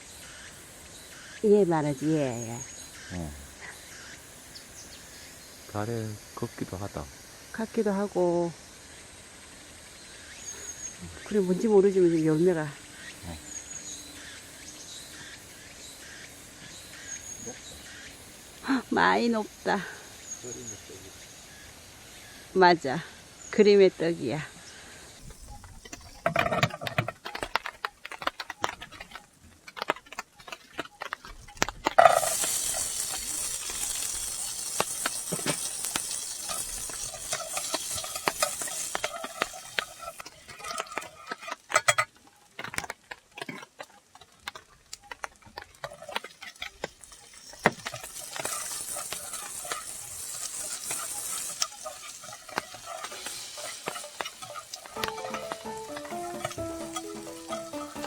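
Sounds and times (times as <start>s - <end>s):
food sizzling in frying pan: 0.0s - 58.0s
cooking utensils clicking: 25.4s - 58.0s.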